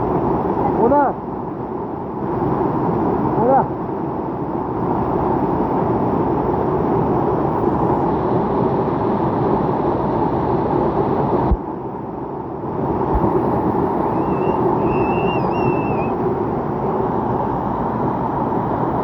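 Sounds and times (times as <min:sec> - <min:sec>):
mountain stream flowing: 0:12.6 - 0:19.0.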